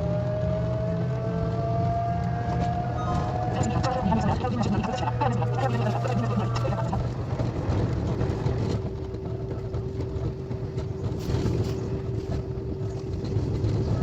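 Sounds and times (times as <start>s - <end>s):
train low rumble: 3.1s - 14.0s
faint steady hum: 3.2s - 7.5s.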